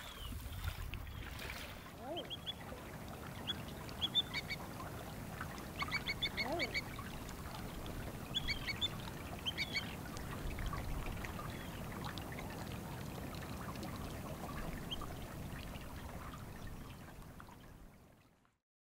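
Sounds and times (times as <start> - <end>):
water trickling and lapping: 0.0 - 18.6
sharp bird calls: 3.4 - 4.6, 5.8 - 7.0, 8.3 - 10.0.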